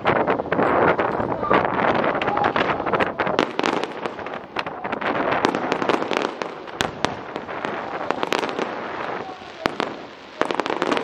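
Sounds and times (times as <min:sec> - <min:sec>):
fireworks popping and crackling: 0:00.0 - 0:11.0.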